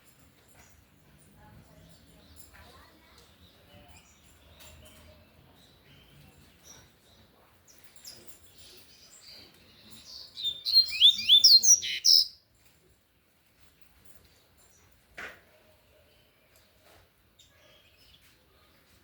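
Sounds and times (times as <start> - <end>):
bird chirping song: 1.7 - 12.4.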